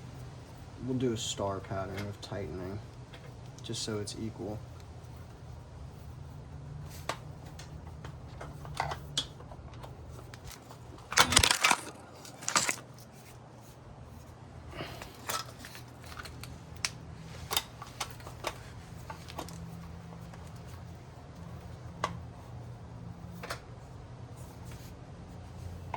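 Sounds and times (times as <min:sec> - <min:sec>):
metal tools clicking and clinking: 0:10.3 - 0:12.9
rattling metal clatter: 0:10.4 - 0:12.9.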